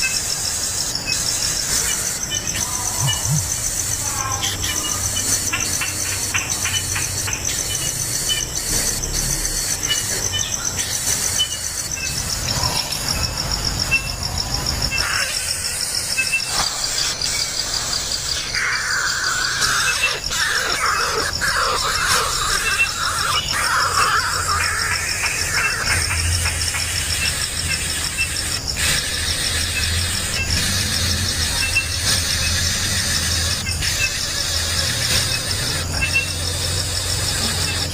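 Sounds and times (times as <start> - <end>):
pulsing insect trill: 0.0 - 37.9
bird chick squealing: 18.5 - 26.2.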